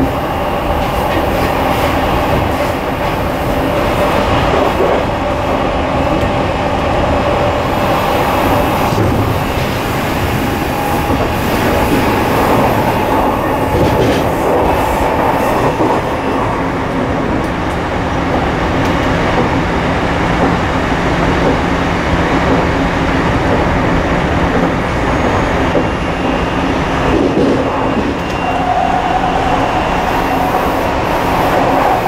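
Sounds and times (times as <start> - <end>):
train wheels rolling on rails: 0.0 - 32.0.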